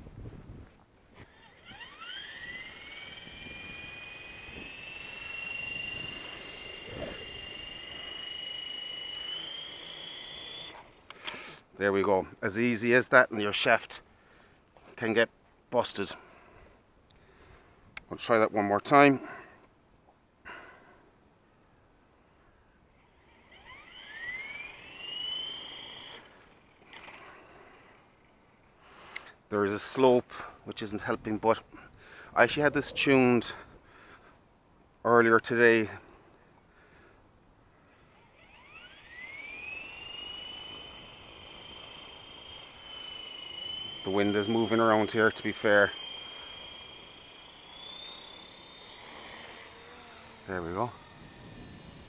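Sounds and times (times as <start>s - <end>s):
rc helicopter motor whine: 1.1s - 11.6s, 22.7s - 28.4s, 37.8s - 52.0s.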